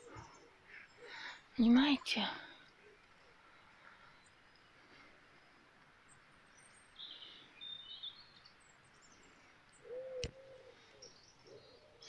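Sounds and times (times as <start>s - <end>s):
birds chirping and trilling: 0.0s - 12.0s
low arching bird call: 9.8s - 12.0s.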